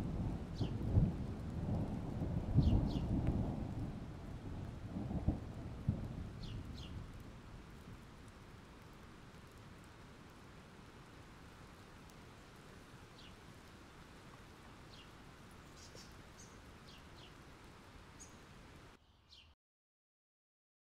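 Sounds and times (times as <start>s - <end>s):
faint rain hiss: 0.0s - 19.4s
bird chirping falling calls: 15.7s - 17.4s.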